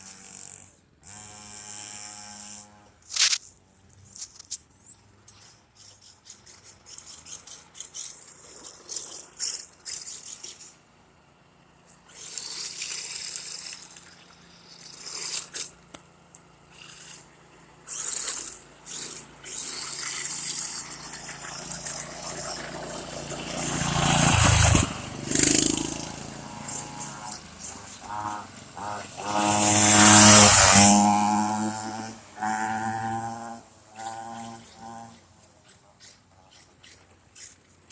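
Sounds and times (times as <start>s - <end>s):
dirt bike engine passing: 0.0s - 4.2s, 11.7s - 35.8s.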